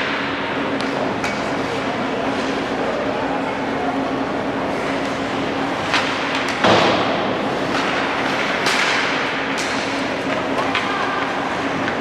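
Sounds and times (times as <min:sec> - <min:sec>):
stick and puck knocks: 0:05.9 - 0:10.9.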